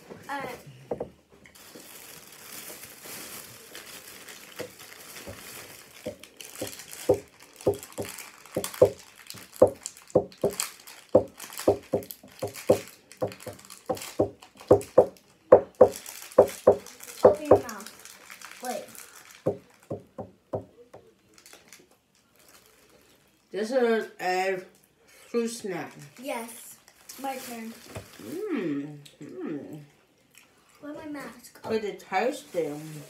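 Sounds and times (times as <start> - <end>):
plastic wrapper crinkling: 1.5 - 20.0, 21.3 - 23.2, 25.9 - 28.2.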